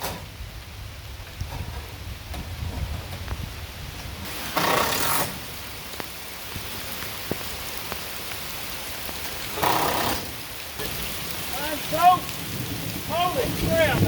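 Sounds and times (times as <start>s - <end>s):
rain falling: 0.0s - 14.0s
sharp raindrop ticks: 4.0s - 14.0s.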